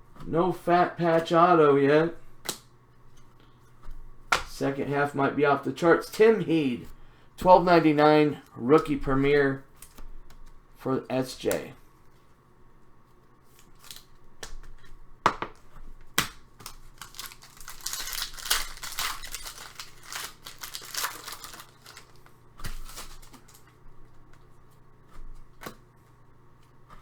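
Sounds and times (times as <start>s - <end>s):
cards clicking and tapping: 2.2s - 4.6s, 9.7s - 10.6s, 13.5s - 24.5s
wrapper tearing and crinkling: 13.6s - 14.1s, 16.3s - 23.7s.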